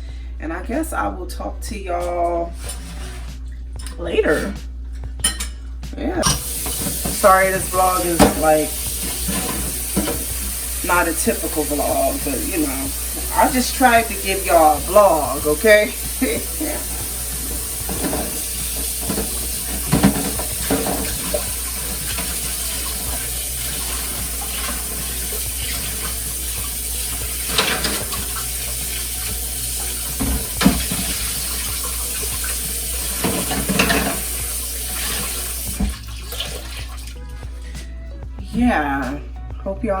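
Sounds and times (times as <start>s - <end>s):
dishes clinking: 5.2s - 10.6s, 14.4s - 29.1s, 29.8s - 36.6s
tap water running into sink: 6.2s - 37.4s.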